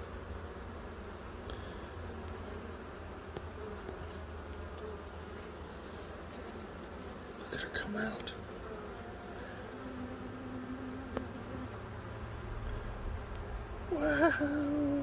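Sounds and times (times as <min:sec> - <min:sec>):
honeybees buzzing: 0:00.0 - 0:15.0
faint ticks: 0:02.2 - 0:02.4, 0:03.3 - 0:04.9, 0:12.6 - 0:13.5.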